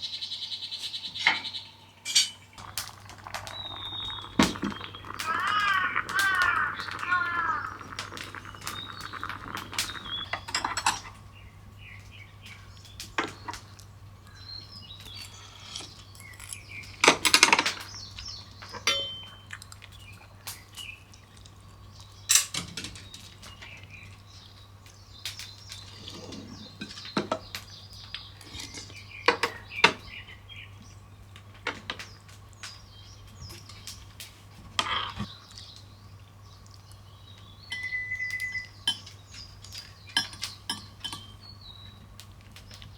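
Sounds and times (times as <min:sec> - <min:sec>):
low steady hum: 0:00.0 - 0:29.3
birds chirping: 0:00.0 - 0:42.9
cutlery clinking against dishes: 0:01.2 - 0:02.5, 0:10.4 - 0:11.2, 0:18.6 - 0:19.8, 0:22.3 - 0:23.3, 0:37.7 - 0:41.4.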